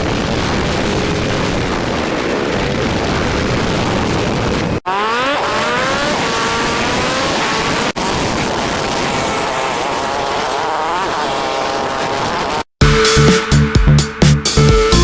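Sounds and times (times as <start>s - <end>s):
rushing wind: 0.0s - 12.7s
motorcycle engine: 4.6s - 14.6s.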